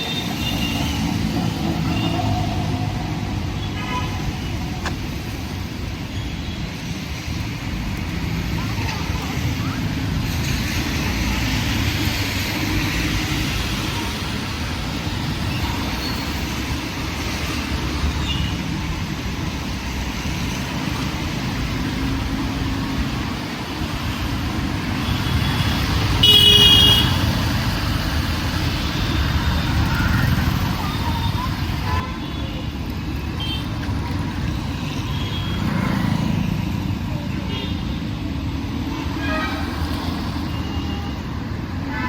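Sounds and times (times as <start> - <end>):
road traffic: 0.0 - 42.0
vehicle horn blast: 26.2 - 27.2.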